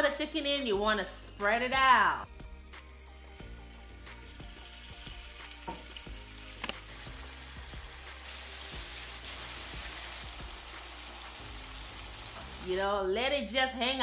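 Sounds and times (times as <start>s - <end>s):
chicken sizzling in hot oil: 2.9s - 12.8s.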